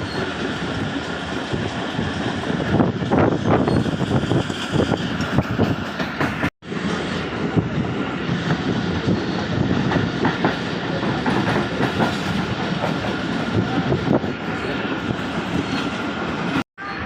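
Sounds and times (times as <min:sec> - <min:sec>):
train running rumble: 0:00.0 - 0:17.0
train wheels clattering over rail joints: 0:08.4 - 0:14.4.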